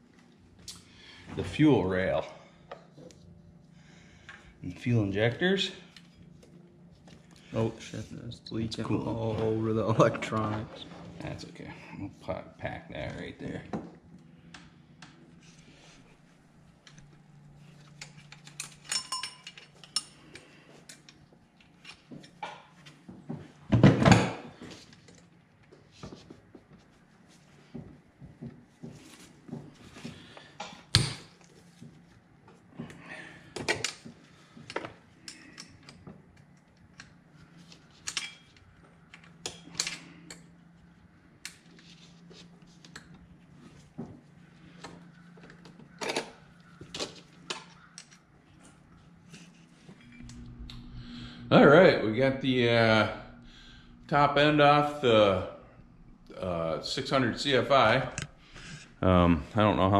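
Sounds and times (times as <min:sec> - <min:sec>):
faint low hum: 0:00.0 - 0:59.9
metal parts clinking and knocking: 0:18.3 - 0:20.1.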